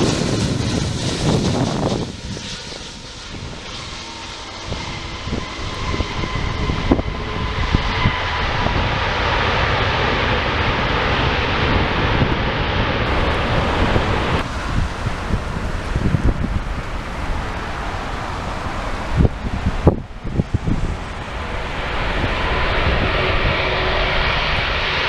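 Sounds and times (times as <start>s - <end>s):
jet airliner passing: 0.0s - 25.0s
faint high engine whine: 12.8s - 25.0s.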